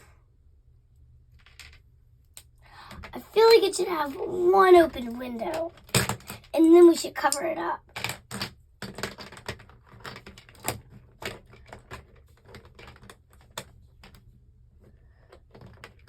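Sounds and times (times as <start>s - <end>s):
plastic bricks clicking and clattering: 1.3s - 1.9s, 2.9s - 14.3s, 15.2s - 16.0s.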